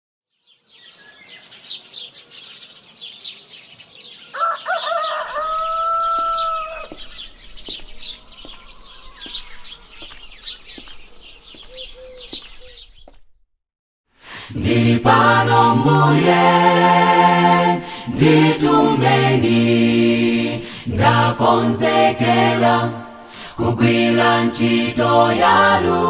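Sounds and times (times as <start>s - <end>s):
small birds chirping: 0.4s - 13.3s
rooster crowing: 4.3s - 7.0s.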